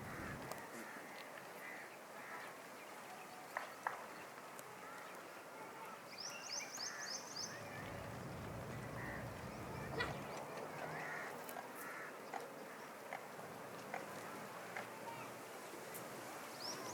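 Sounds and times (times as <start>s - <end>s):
birds chirping and calling: 6.2s - 12.9s.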